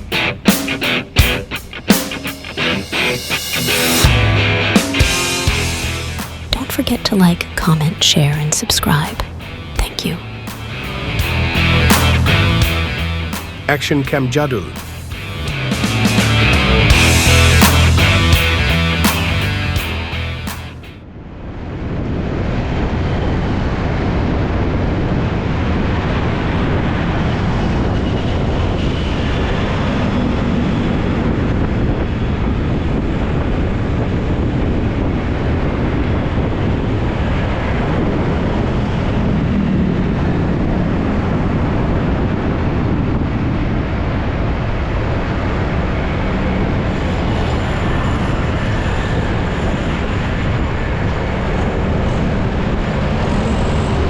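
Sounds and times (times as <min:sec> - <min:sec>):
wind rush on microphone: 0:21.0 - 0:54.0.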